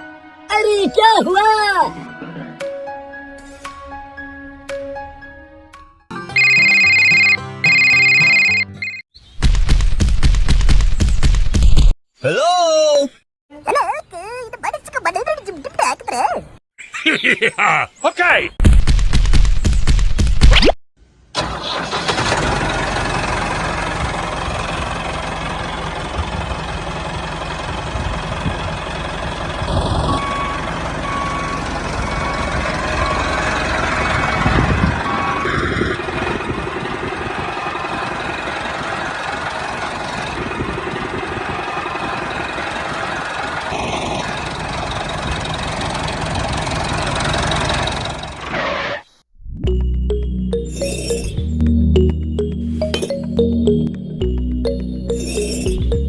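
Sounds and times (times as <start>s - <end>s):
short even beeps: 6.3s - 9.0s
mini tractor engine running: 21.4s - 48.5s.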